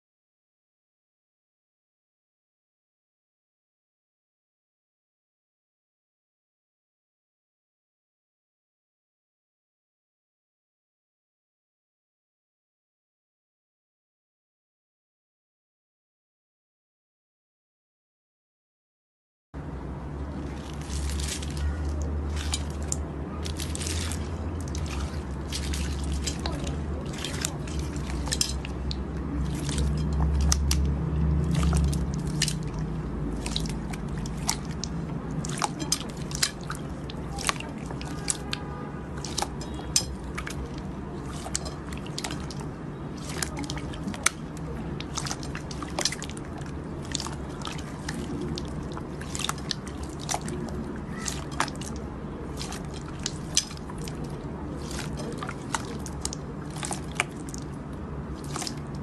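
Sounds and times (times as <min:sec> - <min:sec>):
low steady hum: 0:19.6 - 0:59.0
slime squished by hand: 0:20.3 - 0:59.0.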